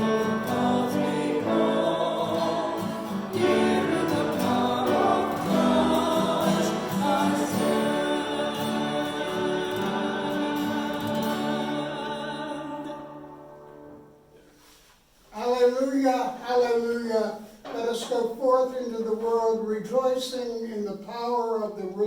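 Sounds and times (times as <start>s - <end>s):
choir singing a hymn: 0.0s - 14.1s.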